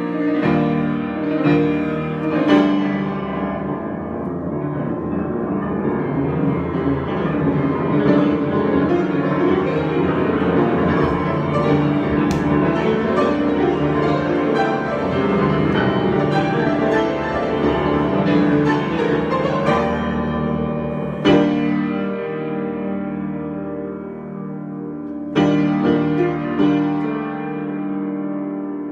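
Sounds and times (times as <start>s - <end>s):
improvised piano music: 0.0s - 28.9s.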